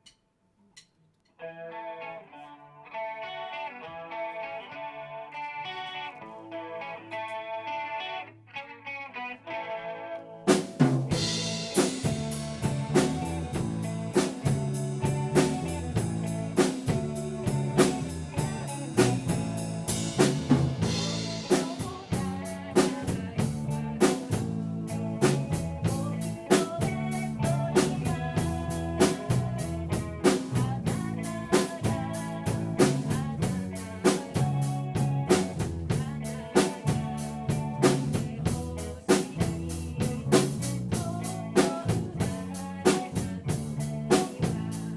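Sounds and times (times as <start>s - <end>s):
electric guitar: 1.3s - 44.9s
bass guitar: 1.4s - 44.9s
drum kit beat: 10.5s - 44.9s.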